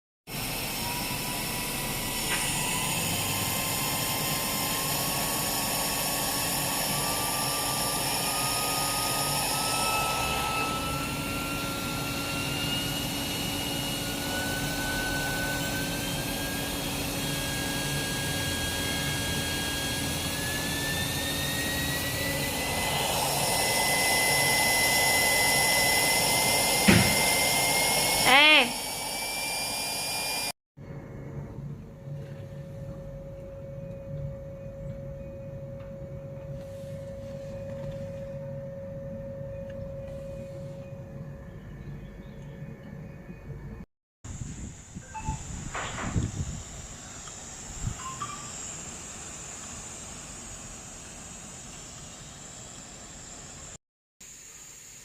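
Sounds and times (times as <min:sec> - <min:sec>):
spindle whine rising in pitch: 0:00.3 - 0:53.8
hiss: 0:54.2 - 0:55.0.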